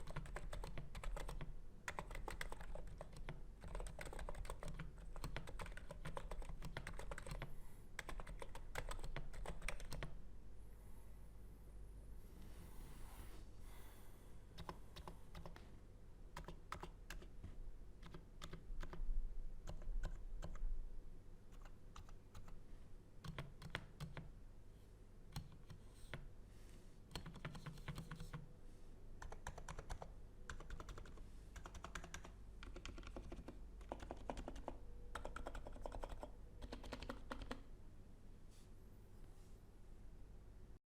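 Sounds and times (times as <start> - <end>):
keyboard typing: 0.0 - 10.2, 14.6 - 15.7, 16.3 - 19.0, 19.6 - 20.7, 21.5 - 22.6, 23.2 - 24.3, 25.3 - 26.3, 27.1 - 28.5, 29.2 - 37.7.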